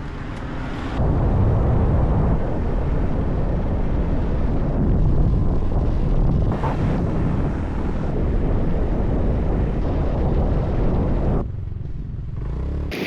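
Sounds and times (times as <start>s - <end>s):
road noise: 0.0s - 13.0s
wind buffeting microphone: 1.0s - 12.3s.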